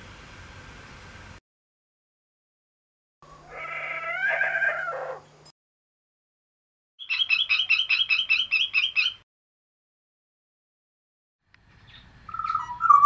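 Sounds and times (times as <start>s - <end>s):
wavering bird call: 3.2s - 5.3s, 7.0s - 9.2s, 12.3s - 13.0s
fast high repeated bird notes: 7.0s - 9.2s.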